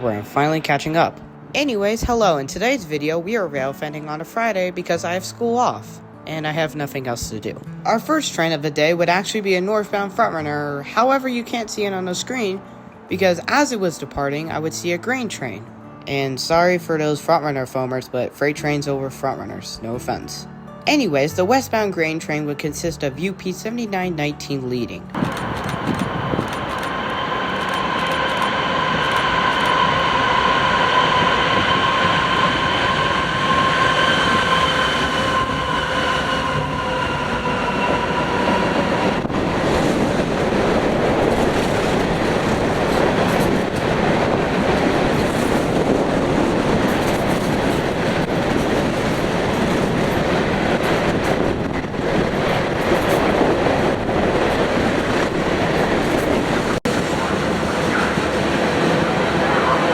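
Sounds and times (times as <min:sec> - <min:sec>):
rolling rumble of train: 0:25.1 - 0:59.9
high sustained train tone: 0:25.2 - 0:59.9.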